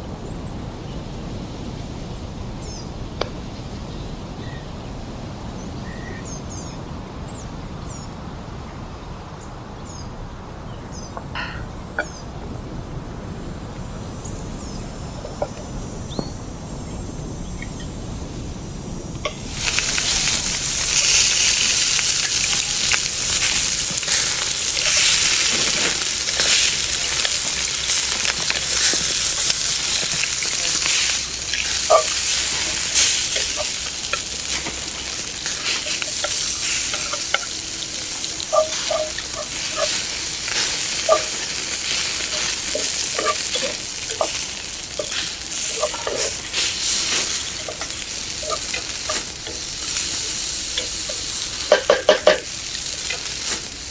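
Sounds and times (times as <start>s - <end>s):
meat sizzling in hot fat: 18.7s - 53.9s
stirring squeaks and scrapes: 19.6s - 51.5s.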